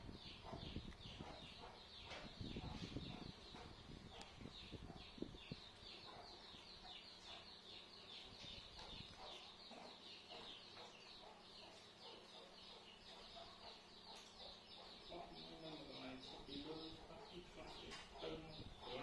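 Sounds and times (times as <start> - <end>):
faint bird chirping: 0.0 - 19.0.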